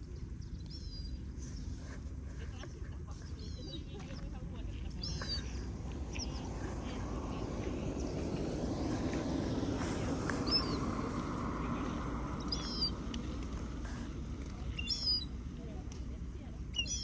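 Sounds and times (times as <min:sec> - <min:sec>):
sparrows chirping: 0:00.0 - 0:15.6, 0:16.5 - 0:17.0
steady rushing background noise: 0:05.3 - 0:14.5.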